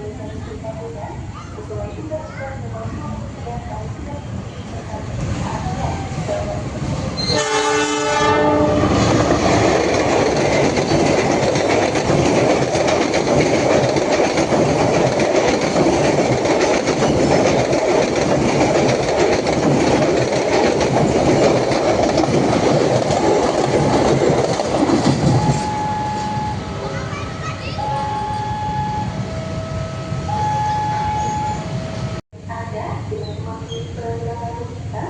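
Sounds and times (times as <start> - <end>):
train wheels rumbling on rails: 0.0 - 32.2
train horn: 7.2 - 9.2.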